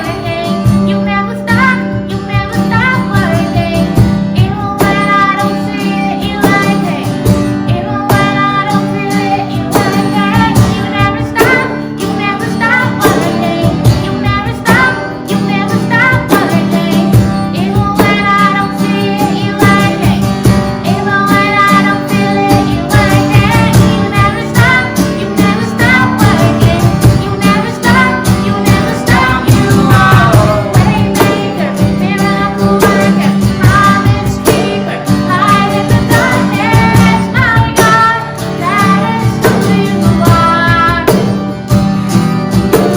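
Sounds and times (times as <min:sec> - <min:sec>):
voices singing: 0:00.0 - 0:41.7
guitar: 0:00.0 - 0:42.9
steady beat: 0:23.0 - 0:42.9.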